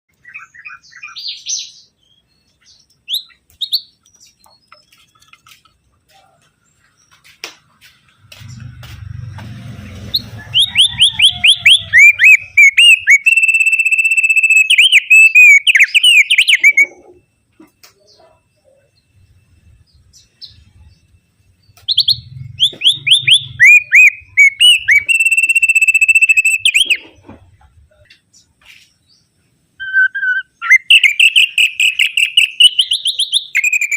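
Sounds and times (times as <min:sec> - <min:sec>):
bird singing whistled trill: 0:00.1 - 0:05.0, 0:10.2 - 0:17.1, 0:18.0 - 0:27.1, 0:29.8 - 0:33.9.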